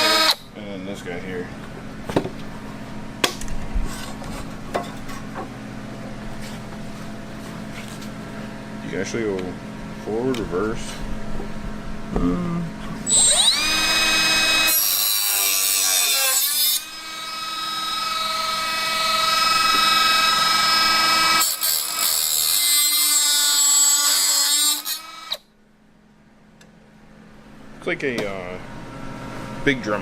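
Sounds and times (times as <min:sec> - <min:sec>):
cut-off tool whining: 0:00.0 - 0:00.5, 0:13.0 - 0:25.5.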